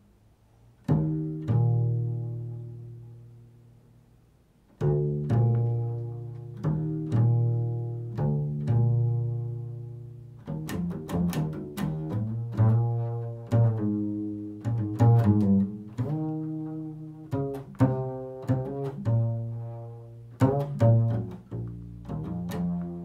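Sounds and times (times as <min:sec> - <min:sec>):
plucked low string instrument: 0:00.8 - 0:03.4, 0:04.8 - 0:23.0.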